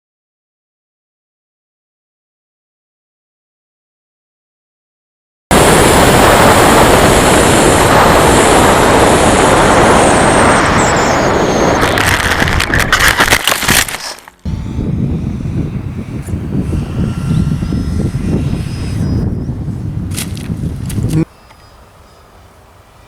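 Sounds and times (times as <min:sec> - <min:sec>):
high whine falling in pitch: 0:05.5 - 0:13.2, 0:14.4 - 0:22.3
model jet rushing noise: 0:05.5 - 0:23.0
sharp crackles and knocks: 0:11.8 - 0:14.4, 0:20.1 - 0:21.6.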